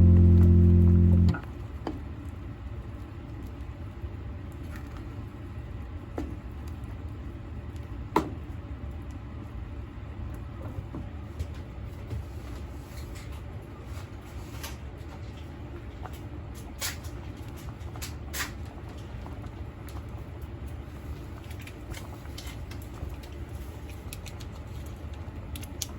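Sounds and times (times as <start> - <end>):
low steady hum: 0.0 - 1.6.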